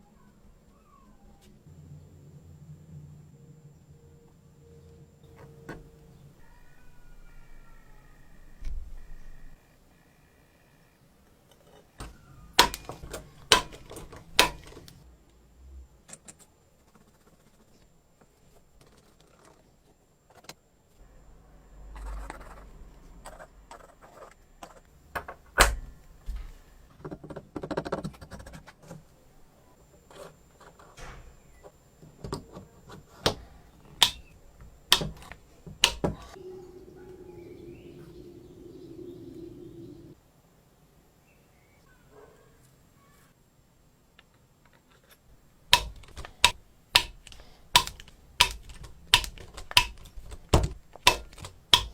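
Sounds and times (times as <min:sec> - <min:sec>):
low hum: 0:01.6 - 0:07.3, 0:36.4 - 0:40.2
sharp taps: 0:45.7 - 0:51.9.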